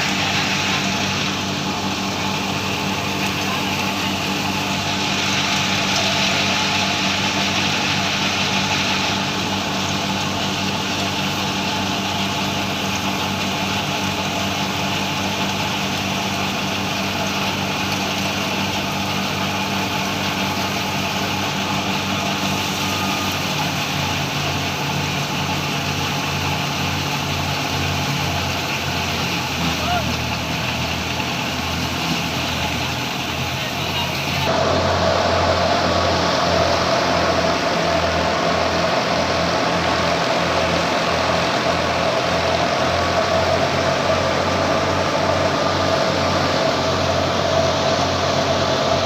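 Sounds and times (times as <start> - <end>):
large machine engine running: 0.0 - 49.0.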